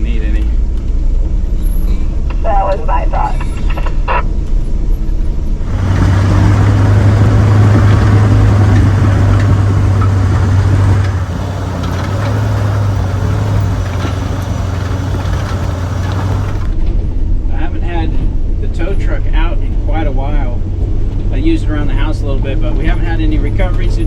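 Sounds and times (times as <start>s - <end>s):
truck engine drone: 0.0s - 17.5s
tyres on dirt road: 0.0s - 24.0s.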